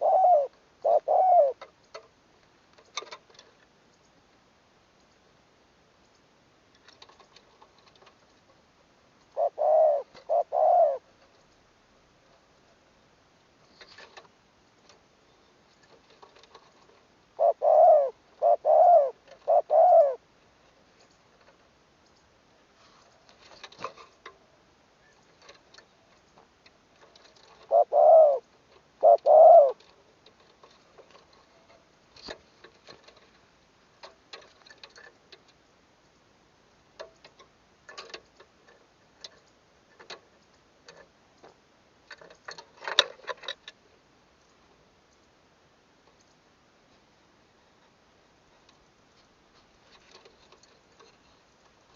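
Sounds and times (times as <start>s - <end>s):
dove cooing: 0.0s - 1.7s, 9.3s - 11.1s, 17.4s - 20.2s, 27.4s - 29.9s
faint clicks: 1.6s - 4.2s, 5.0s - 5.3s, 6.0s - 8.6s, 46.0s - 46.4s.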